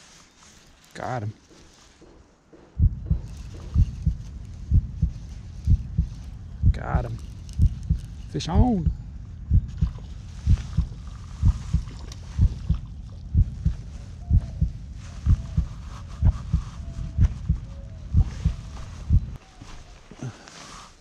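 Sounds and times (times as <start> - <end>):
dull thumps on microphone: 2.0 - 5.1.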